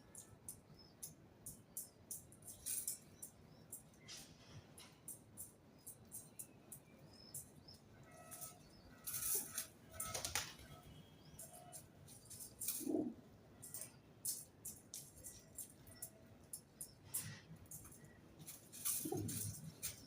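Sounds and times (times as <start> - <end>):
faint bird chirps: 0.0 - 20.0
small ticks: 0.1 - 3.9, 13.6 - 20.0
birds flapping wings: 8.3 - 10.7.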